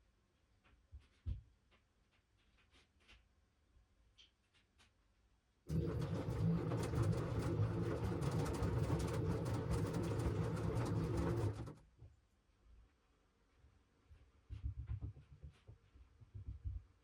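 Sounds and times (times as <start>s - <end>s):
washing machine drum churning: 5.7s - 11.8s.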